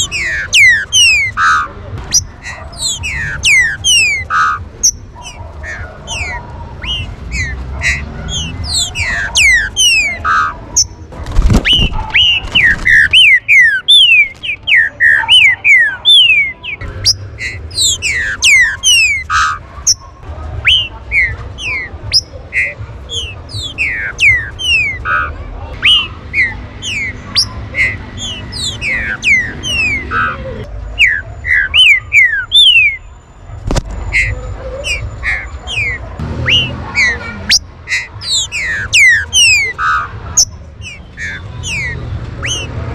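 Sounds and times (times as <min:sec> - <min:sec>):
birds whistling calls: 0:00.0 - 0:42.9
harsh bird notes: 0:00.0 - 0:42.9.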